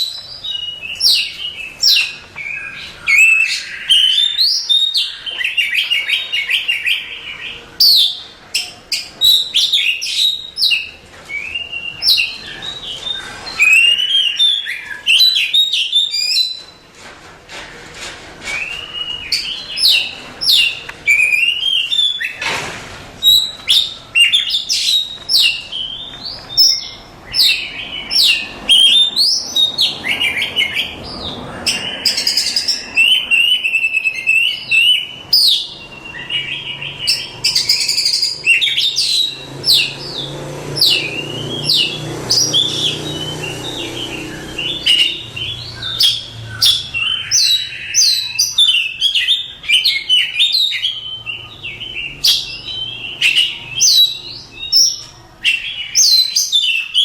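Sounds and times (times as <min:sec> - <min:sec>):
songbird whistles and trills: 0:00.0 - 0:16.8, 0:18.4 - 0:22.4, 0:23.2 - 0:31.0.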